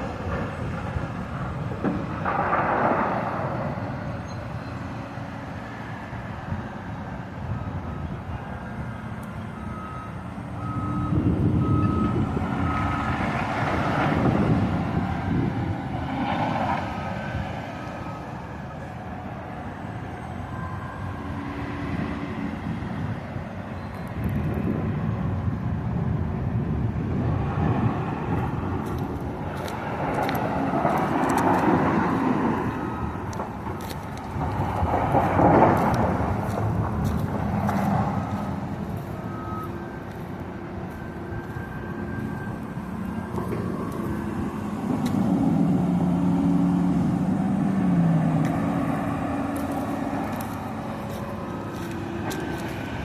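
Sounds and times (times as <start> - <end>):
reversing alarm beeping: 7.5 - 14.0, 19.6 - 22.6, 30.8 - 46.4
backhoe engine revving: 28.4 - 53.0.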